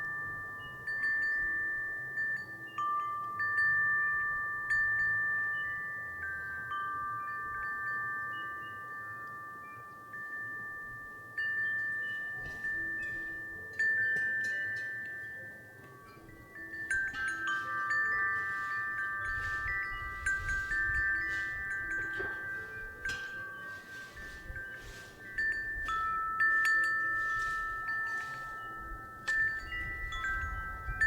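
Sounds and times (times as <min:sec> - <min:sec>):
wind chime ringing: 0:00.0 - 0:31.0
low wind rumble: 0:16.4 - 0:31.0.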